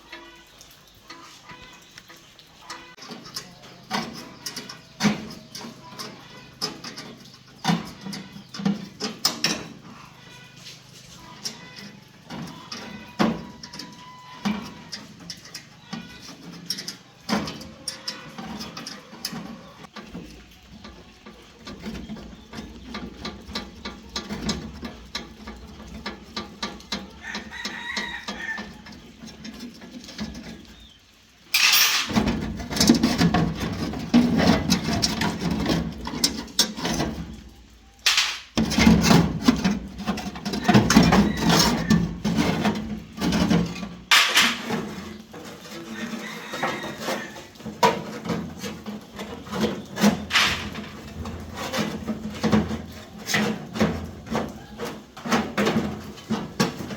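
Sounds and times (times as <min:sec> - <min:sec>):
chickens clucking: 0:00.0 - 0:56.9
rooster crowing: 0:27.2 - 0:28.9, 0:45.8 - 0:47.6.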